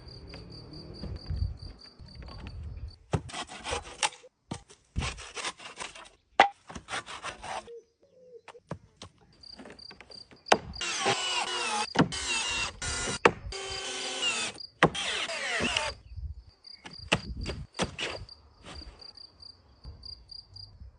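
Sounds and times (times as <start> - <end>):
cricket chirping: 0.0 - 3.0, 15.8 - 20.9
sawing strokes on wood: 3.2 - 4.2, 6.7 - 7.7
power tool running: 10.8 - 16.0.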